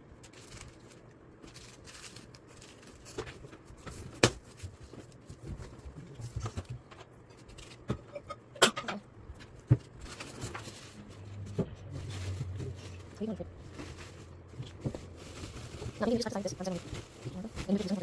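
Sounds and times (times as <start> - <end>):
packaging rustling: 0.1 - 7.9, 11.8 - 18.0.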